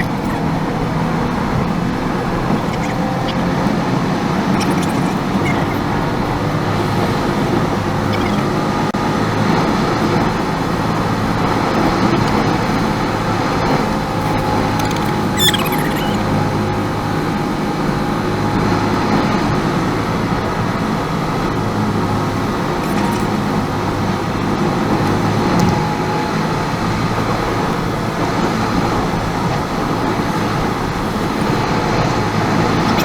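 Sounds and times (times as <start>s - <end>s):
car engine humming: 0.0s - 33.0s
road and tyre noise: 0.0s - 33.0s.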